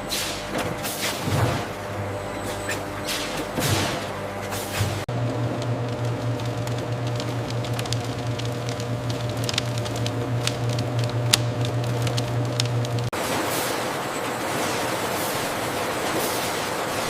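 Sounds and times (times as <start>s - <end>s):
low machine hum: 0.0s - 17.0s
crackling ticks: 5.2s - 13.1s.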